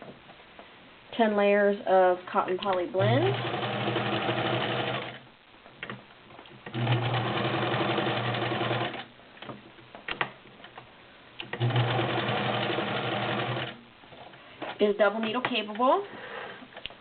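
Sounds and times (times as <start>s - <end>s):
clicks: 2.5s - 2.9s
sewing machine stitching: 3.0s - 5.2s, 6.6s - 9.1s, 11.5s - 13.8s.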